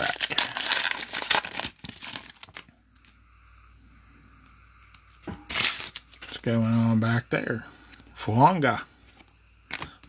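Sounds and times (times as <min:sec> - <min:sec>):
foil wrapper crinkling: 0:00.0 - 0:03.2, 0:05.5 - 0:06.5
room hum: 0:00.0 - 0:10.0
cards being handled: 0:09.1 - 0:10.0.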